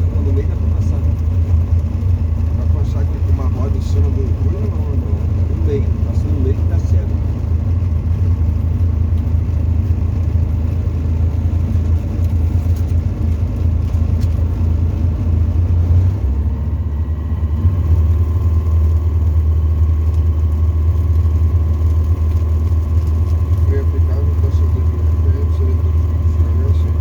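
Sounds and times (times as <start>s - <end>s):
aircraft engine and propeller drone: 0.0s - 27.0s.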